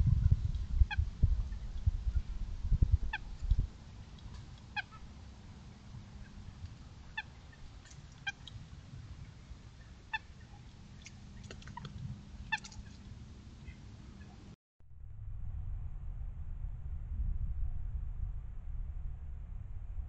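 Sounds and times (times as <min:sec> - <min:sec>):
low background rumble: 0:00.0 - 0:20.0
bird calling: 0:04.7 - 0:05.1, 0:09.2 - 0:14.5.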